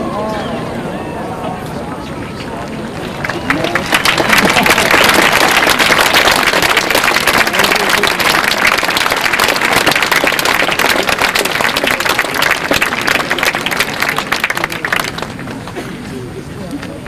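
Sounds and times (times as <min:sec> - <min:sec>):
crowd applauding: 0:02.6 - 0:15.8.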